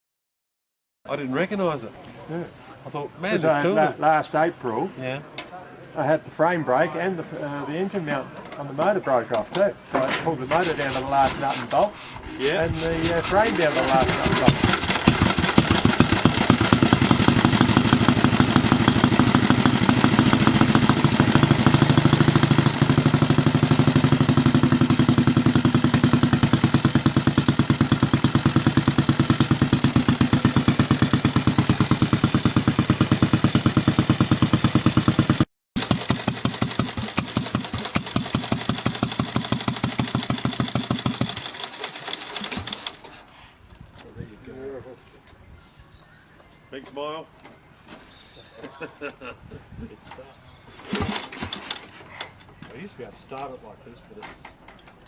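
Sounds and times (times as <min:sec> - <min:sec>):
motorcycle engine running: 0:10.5 - 0:42.8.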